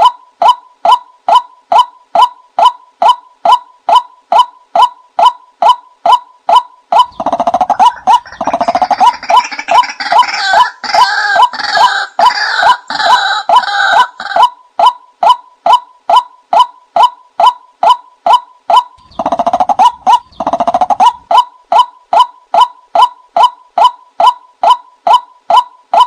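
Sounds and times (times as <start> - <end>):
overlapping bird calling: 0.0 - 26.0
bird decoy call: 6.9 - 14.6, 16.6 - 26.0.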